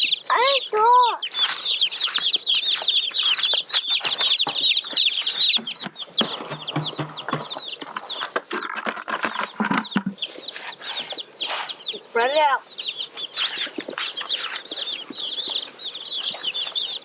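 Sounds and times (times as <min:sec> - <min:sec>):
chicks peeping: 0:00.0 - 0:17.0
scratching in wood shavings: 0:00.3 - 0:17.0.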